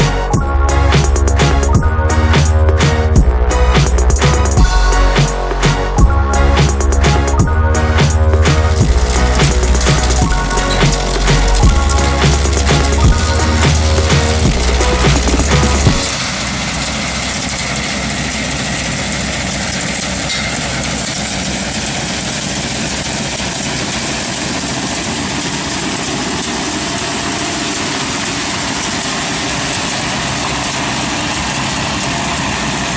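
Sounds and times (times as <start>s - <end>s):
music: 0.0s - 16.1s
heavy machine engine running: 0.0s - 32.9s.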